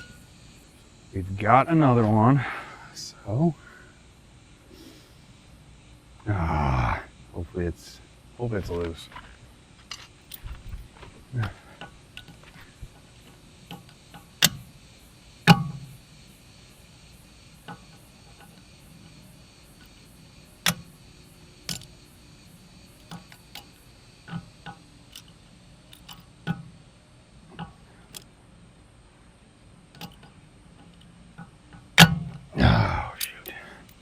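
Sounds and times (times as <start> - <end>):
hand tools clicking on metal: 8.6 - 14.7, 15.4 - 16.0, 21.7 - 21.9, 23.0 - 26.7, 29.9 - 34.0.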